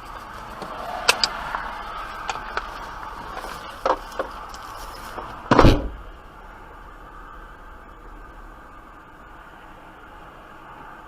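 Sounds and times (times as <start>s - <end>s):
road noise inside car: 0.0s - 11.0s
loud thump: 5.5s - 6.1s.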